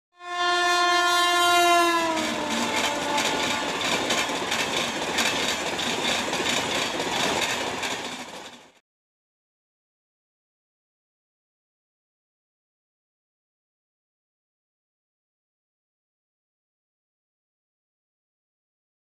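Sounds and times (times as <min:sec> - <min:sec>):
locomotive horn blast: 0:00.2 - 0:04.4
train wheel clatter: 0:01.4 - 0:08.8.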